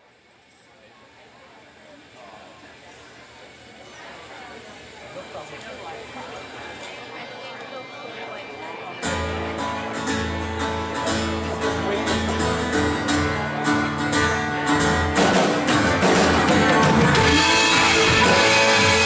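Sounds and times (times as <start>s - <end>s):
strummed guitar: 8.9s - 19.0s
steady held bass: 9.0s - 19.0s.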